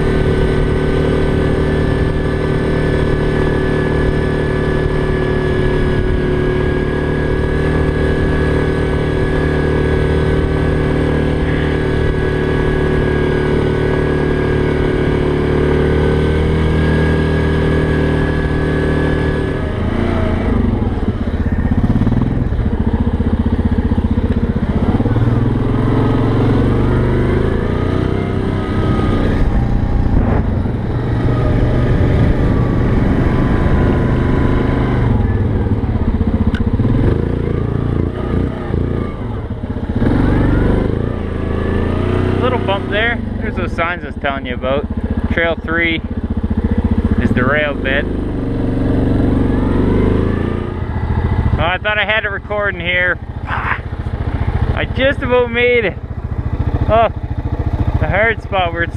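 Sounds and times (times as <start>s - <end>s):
atv engine running: 0.0s - 58.9s.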